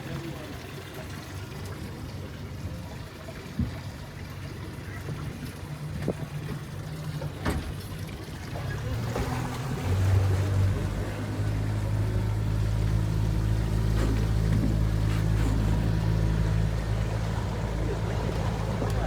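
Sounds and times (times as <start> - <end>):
boat motor running: 0.0 - 19.0.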